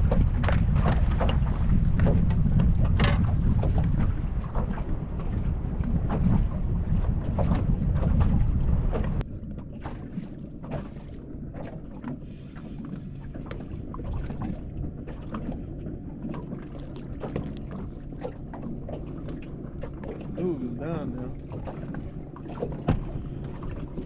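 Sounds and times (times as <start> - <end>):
water lapping against boat: 0.0 - 24.0
wind rumbling on microphone: 0.0 - 24.0
light knocks and ticks: 0.1 - 4.0.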